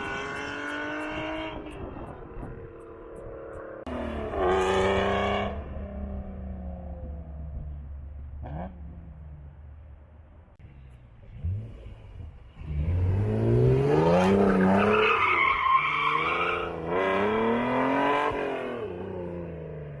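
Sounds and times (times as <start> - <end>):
car engine accelerating hard: 11.2 - 15.5.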